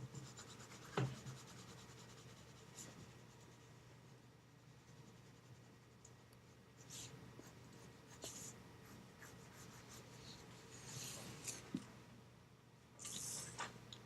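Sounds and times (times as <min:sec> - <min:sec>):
pencil scratching on paper: 0:00.0 - 0:05.9, 0:06.8 - 0:11.2.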